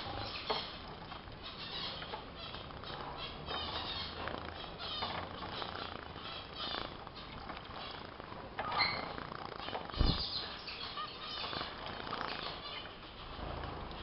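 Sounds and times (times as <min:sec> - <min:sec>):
finches chirping: 0:00.0 - 0:14.0
wings fluttering: 0:03.8 - 0:14.0.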